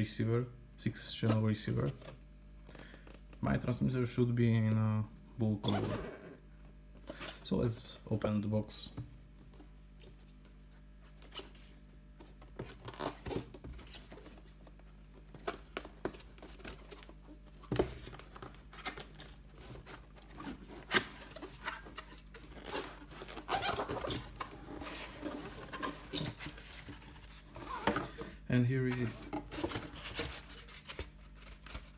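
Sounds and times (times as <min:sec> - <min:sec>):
cardboard box packaging handled: 0:12.3 - 0:28.2, 0:28.9 - 0:31.9.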